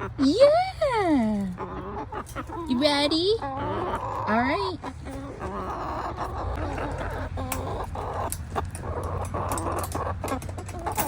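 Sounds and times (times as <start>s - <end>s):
hens clucking: 0.0s - 11.0s
clicks and rustles: 7.5s - 11.0s.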